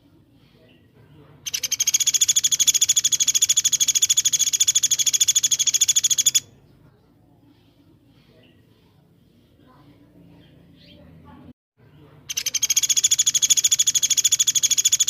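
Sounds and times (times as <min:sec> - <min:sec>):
songbird rapid high trill: 0:01.5 - 0:06.5, 0:12.3 - 0:15.0.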